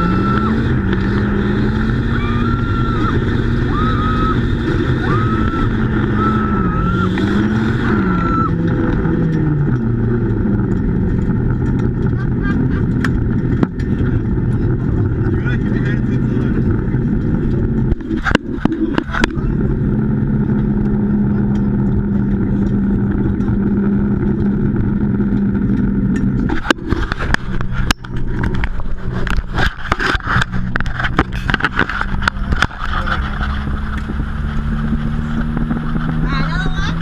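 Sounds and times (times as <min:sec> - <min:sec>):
car engine running under load: 0:00.0 - 0:37.0
sharp clicks and knocks: 0:08.6 - 0:14.9, 0:15.5 - 0:19.5, 0:20.4 - 0:36.2.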